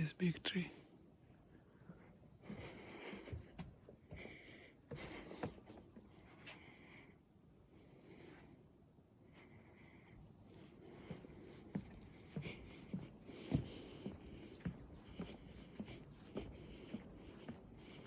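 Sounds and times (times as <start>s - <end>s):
footsteps on wooden boardwalk: 2.4s - 6.0s, 11.0s - 18.0s.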